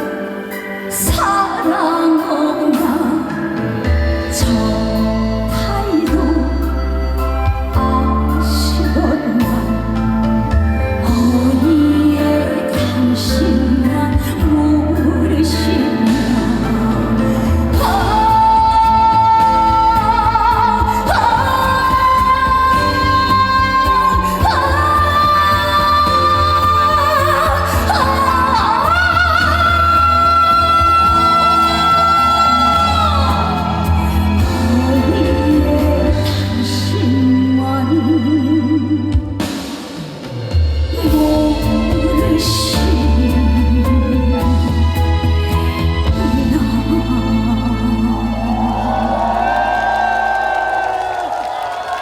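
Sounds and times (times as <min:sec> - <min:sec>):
band accompaniment: 0:39.0 - 0:46.7.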